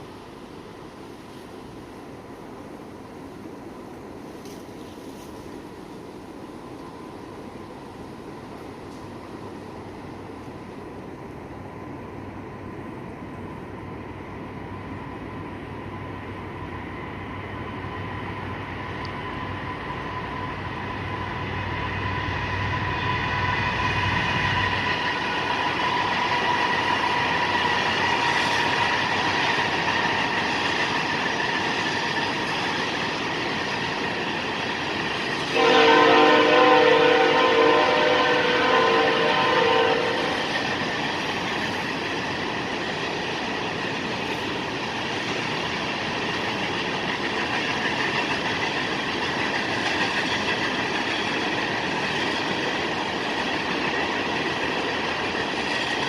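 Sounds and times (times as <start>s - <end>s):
freight train rumble: 0.0s - 56.0s
locomotive air horn: 35.5s - 40.4s.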